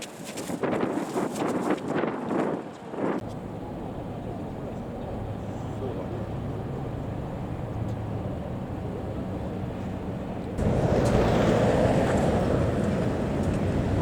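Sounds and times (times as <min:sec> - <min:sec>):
low engine hum: 0:03.2 - 0:14.0
broad rushing noise: 0:10.6 - 0:14.0.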